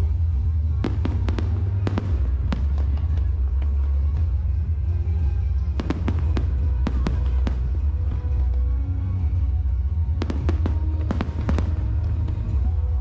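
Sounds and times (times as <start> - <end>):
low rumble: 0.0 - 13.0
music playing: 0.0 - 13.0
fireworks cracking: 0.8 - 4.4, 5.7 - 8.4, 10.1 - 12.8.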